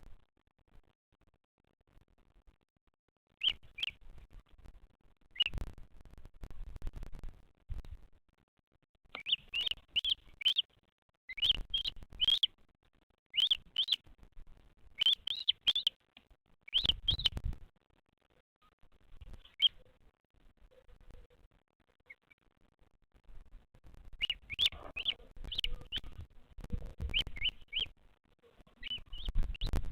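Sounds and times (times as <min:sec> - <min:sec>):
bird chirping: 0:03.4 - 0:04.0, 0:05.3 - 0:05.6, 0:09.1 - 0:10.7, 0:11.3 - 0:12.6, 0:13.3 - 0:14.1, 0:14.8 - 0:16.0, 0:16.6 - 0:17.5, 0:18.6 - 0:20.0, 0:20.6 - 0:22.4, 0:24.1 - 0:29.9.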